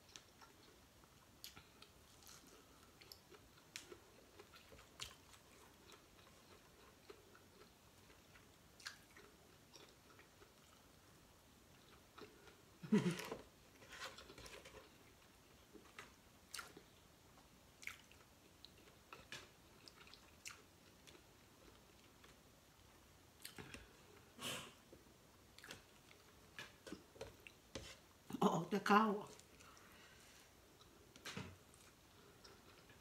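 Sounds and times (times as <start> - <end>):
wet chewing and lip smacks: 0.1 - 10.9, 17.8 - 22.4.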